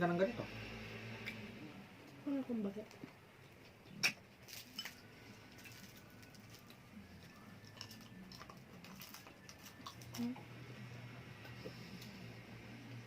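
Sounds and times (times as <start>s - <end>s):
chewing: 4.5s - 10.4s.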